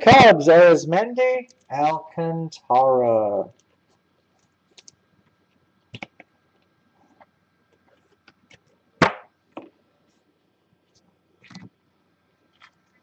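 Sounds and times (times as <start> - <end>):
trading cards clicking and tapping: 6.0 - 6.3
card slap: 9.0 - 9.3.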